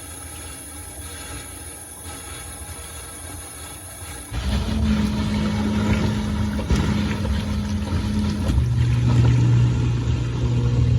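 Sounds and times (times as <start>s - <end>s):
dishwasher pump motor hum: 0.0s - 10.9s
churning rumble: 4.3s - 10.9s.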